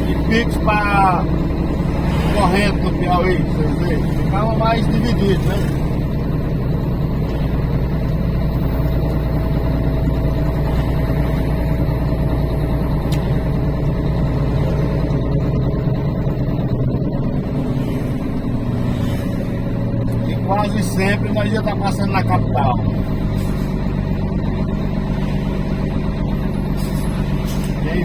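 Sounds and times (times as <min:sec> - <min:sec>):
truck engine and road rumble: 0:00.0 - 0:28.0.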